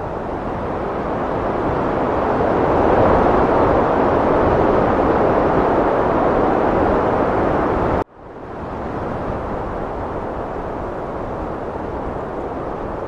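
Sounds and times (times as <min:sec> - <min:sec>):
heavy wind rushing: 0:00.0 - 0:13.0.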